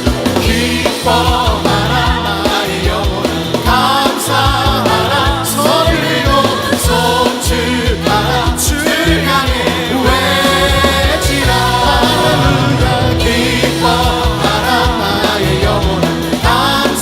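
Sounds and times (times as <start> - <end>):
people singing: 0.0 - 17.0
worship band music: 0.0 - 17.0
cymbal crashes: 10.5 - 14.6.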